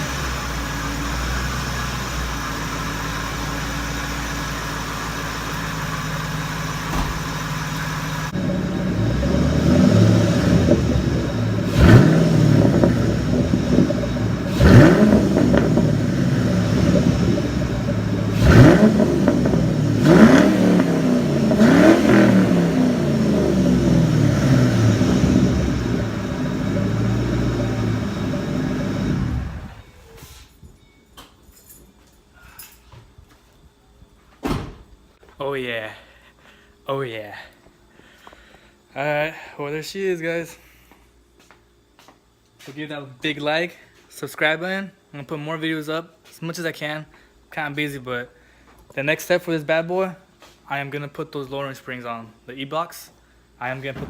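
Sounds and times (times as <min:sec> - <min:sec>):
car engine revving: 0:06.0 - 0:29.8.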